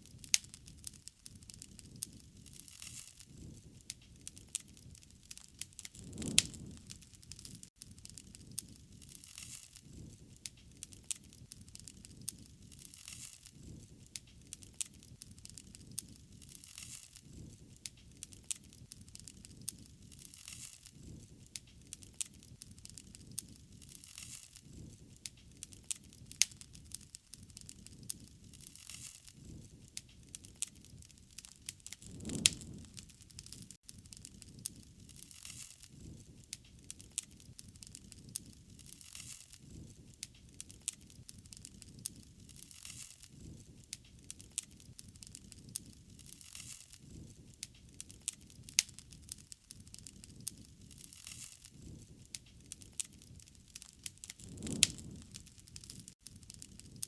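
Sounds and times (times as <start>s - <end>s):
low rumble of flames: 0.0s - 57.0s
wood fire crackling: 0.0s - 57.0s.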